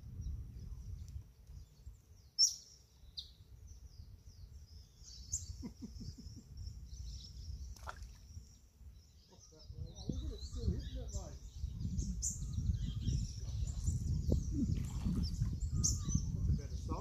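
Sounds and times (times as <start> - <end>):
wind rumble on microphone: 0.0 - 2.3, 3.0 - 17.0
small birds chirping: 0.1 - 17.0
small splash in water: 7.7 - 8.3.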